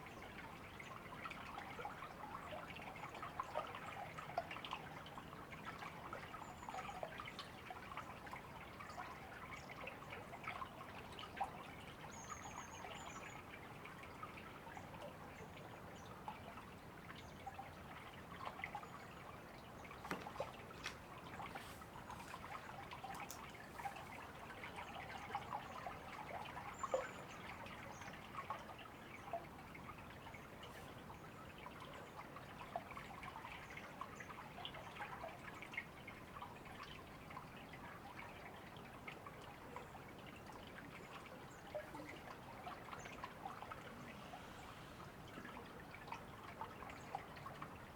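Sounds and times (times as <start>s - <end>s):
river babbling: 19.3s - 30.0s.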